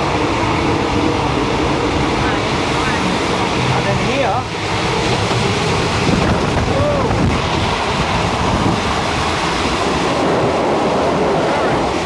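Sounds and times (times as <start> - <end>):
train rumbling at speed: 0.0 - 12.0
wind buffeting microphone: 0.0 - 12.0.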